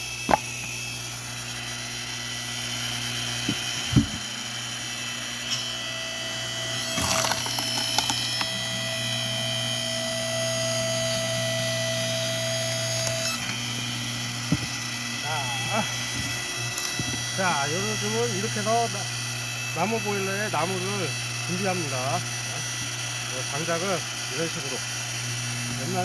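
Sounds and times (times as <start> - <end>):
log splitter engine running: 0.0 - 11.0, 12.9 - 26.0
hydraulic whine: 0.0 - 26.0
wood cracking and splitting: 6.8 - 8.5.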